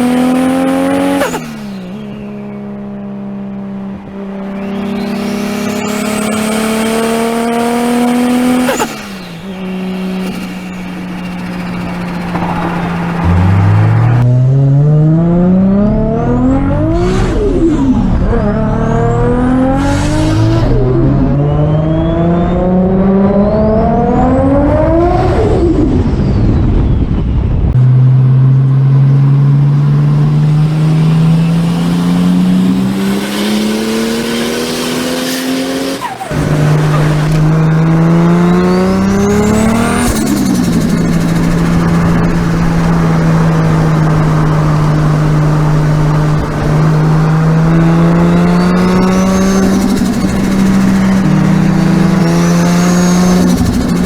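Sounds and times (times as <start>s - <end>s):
turbo car engine accelerating: 0.0s - 54.0s
high turbo whistle: 4.3s - 14.3s, 29.8s - 54.0s.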